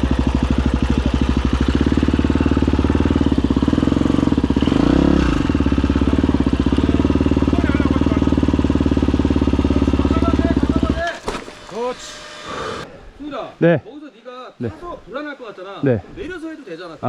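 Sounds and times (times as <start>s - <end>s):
dirt bike engine idling: 0.0s - 12.8s.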